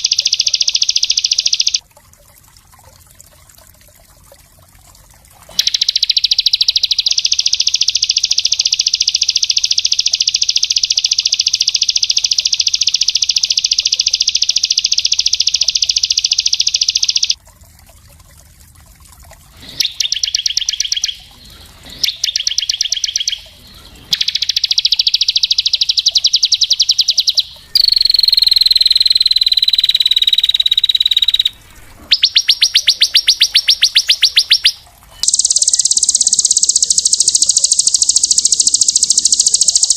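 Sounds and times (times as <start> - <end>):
songbird trilling: 0.0 - 1.8, 5.6 - 17.4, 19.7 - 39.9
whistled bird note: 21.9 - 39.9.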